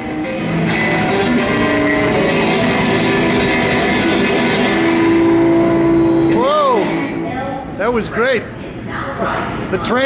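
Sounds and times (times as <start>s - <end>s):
guitar strummed and plucked: 0.0s - 7.8s.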